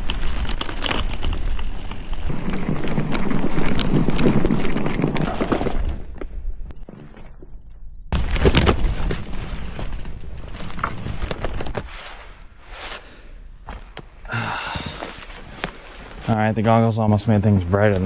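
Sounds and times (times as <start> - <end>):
snow crunching: 8.2 - 18.0.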